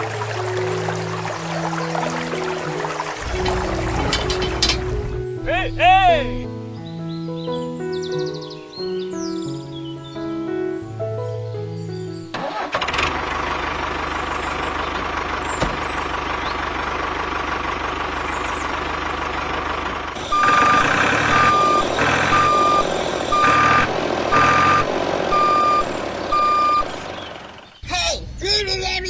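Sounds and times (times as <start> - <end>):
vehicle engine running: 0.0 - 5.2, 12.7 - 29.0
reversing alarm beeping: 20.2 - 27.0.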